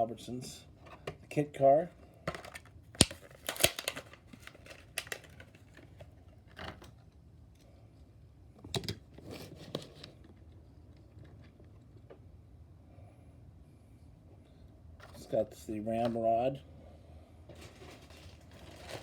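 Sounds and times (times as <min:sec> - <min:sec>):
plastic packaging crinkling: 0:02.3 - 0:06.1, 0:17.5 - 0:19.0.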